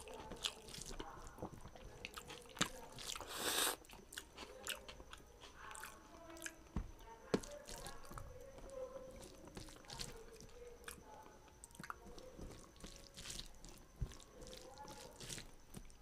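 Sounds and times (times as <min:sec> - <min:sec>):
wet chewing and lip smacks: 0:00.0 - 0:06.6, 0:11.6 - 0:16.0.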